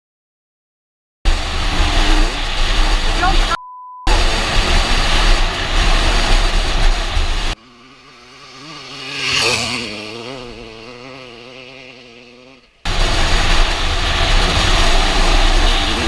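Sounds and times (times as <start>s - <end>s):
motocross bike passing by: 4.1s - 16.0s.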